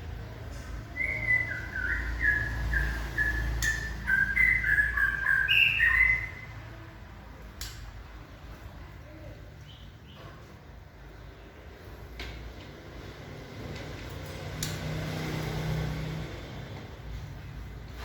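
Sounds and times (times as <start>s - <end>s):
bird whistling: 0.9s - 6.6s.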